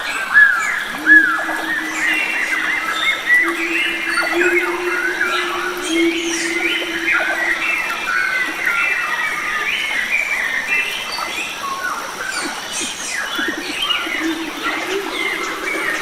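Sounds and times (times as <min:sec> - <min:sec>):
forest birds chirping: 0:00.5 - 0:16.0
thin high steady tone: 0:00.9 - 0:09.3, 0:13.5 - 0:16.0.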